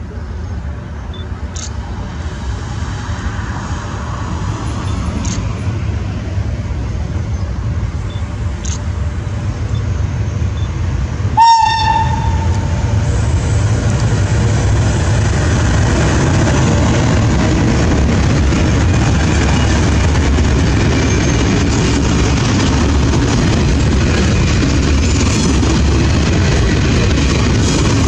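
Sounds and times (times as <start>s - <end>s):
freight train rumble: 0.0s - 28.0s
locomotive horn blast: 11.4s - 12.9s.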